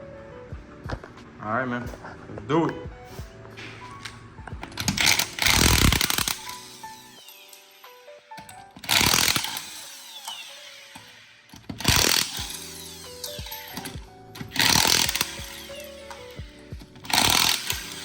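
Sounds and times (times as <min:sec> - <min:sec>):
impact wrench bursts: 0:04.6 - 0:18.0
impact wrench winding down whine: 0:04.8 - 0:18.0.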